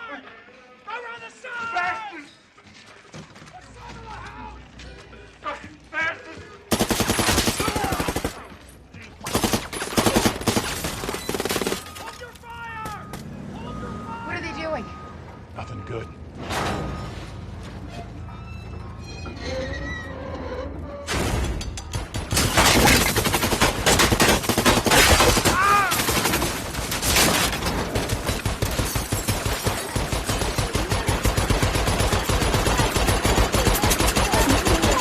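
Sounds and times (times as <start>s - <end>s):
rapid automatic gunfire: 6.7s - 8.4s, 9.3s - 11.9s, 22.3s - 35.0s.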